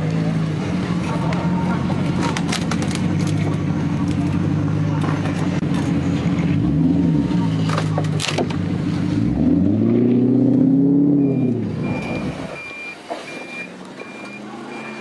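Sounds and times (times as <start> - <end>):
car engine revving: 0.0 - 15.0
vehicle reversing beep: 11.1 - 15.0.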